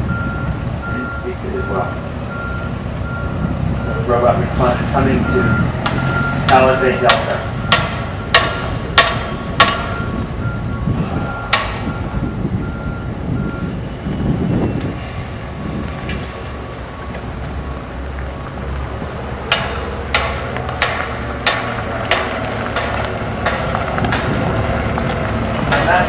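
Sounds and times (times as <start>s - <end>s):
forklift warning alarm beeping: 0.0s - 18.0s
forklift running: 0.0s - 26.0s.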